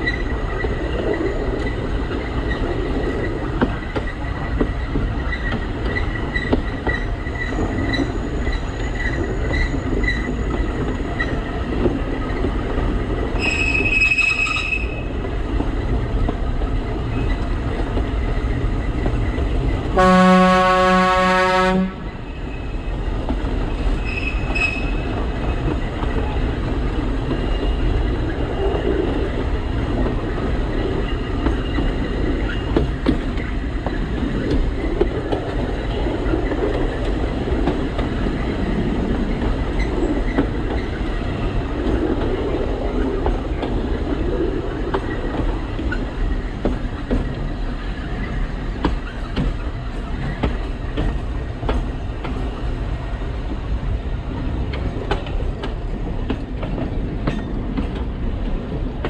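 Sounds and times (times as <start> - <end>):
train wheels rumbling on track: 0.0 - 59.0
high-pitched wheel squeals: 5.3 - 11.4, 13.4 - 15.1, 24.0 - 25.1
train horn blast: 20.0 - 22.1.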